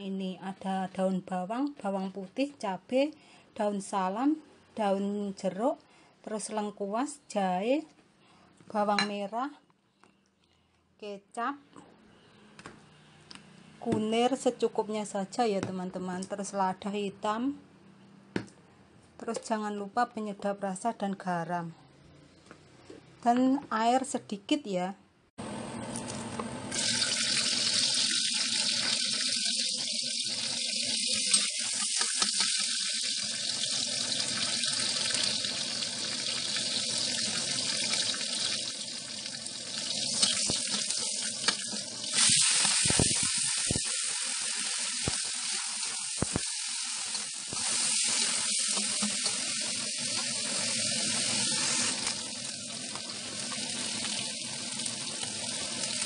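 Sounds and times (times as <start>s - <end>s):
spices sizzling in hot oil: 26.7s - 56.0s.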